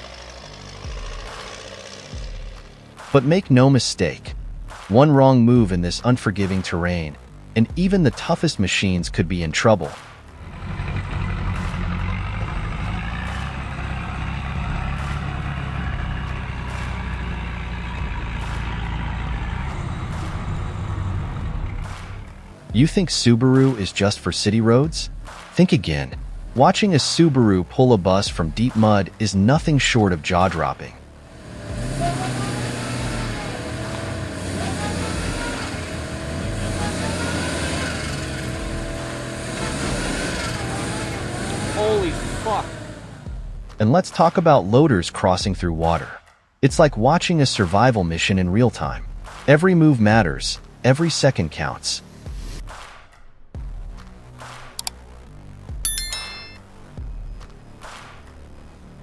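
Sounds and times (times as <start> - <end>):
heavy machine engine drone: 0.0 - 3.1, 10.3 - 22.8, 31.0 - 43.4.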